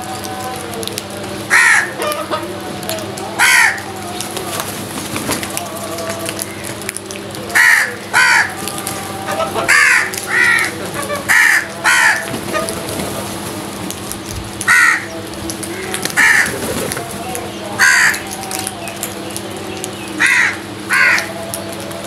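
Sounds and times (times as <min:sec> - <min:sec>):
steady background hum: 0:00.0 - 0:22.0
crows cawing: 0:01.5 - 0:02.4, 0:03.4 - 0:03.9, 0:07.6 - 0:08.7, 0:09.4 - 0:12.7, 0:14.7 - 0:17.0, 0:17.8 - 0:18.3, 0:20.2 - 0:21.4.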